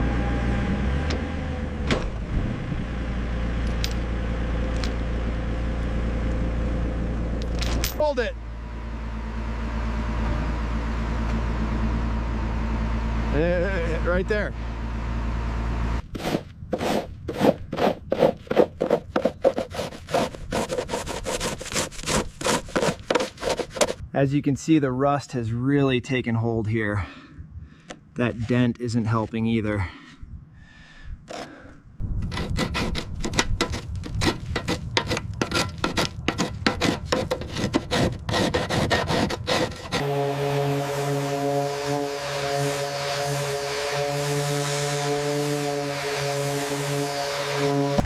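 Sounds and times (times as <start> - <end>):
hand tool scrubbing rusty metal: 16.2 - 24.0, 32.3 - 48.0
scraping on hard surface: 16.2 - 24.0, 28.2 - 29.5, 32.2 - 40.1.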